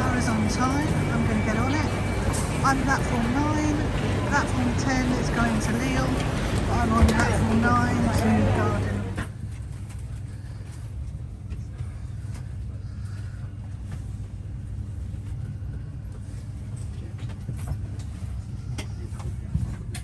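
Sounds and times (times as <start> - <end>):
train humming at platform: 0.0 - 20.0.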